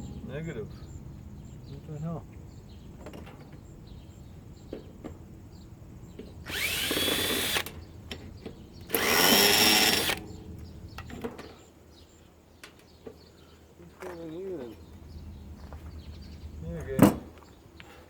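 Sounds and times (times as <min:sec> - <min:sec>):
cordless drill running: 0:06.5 - 0:07.7, 0:08.9 - 0:10.2.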